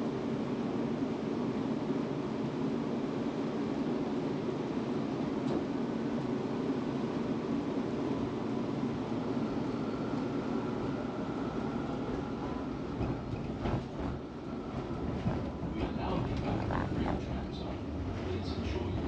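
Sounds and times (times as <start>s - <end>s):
tram wheels rumbling on rails: 8.3s - 19.0s
knocks and clacks over track: 12.9s - 19.0s.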